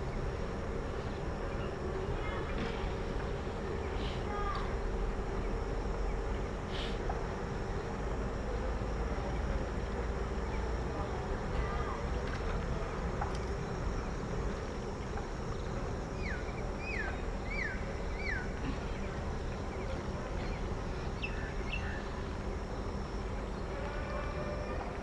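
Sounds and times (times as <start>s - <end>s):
low background noise: 0.0s - 25.0s
faint chirps: 13.2s - 25.0s.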